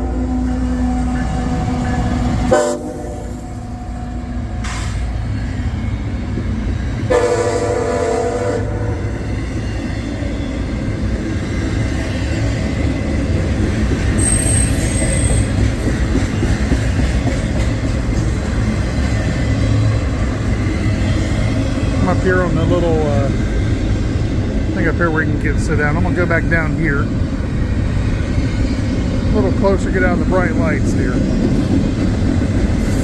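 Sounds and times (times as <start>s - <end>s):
train rolling past rumble: 0.0s - 33.0s
locomotive horn blasts: 2.5s - 3.4s, 7.1s - 9.0s.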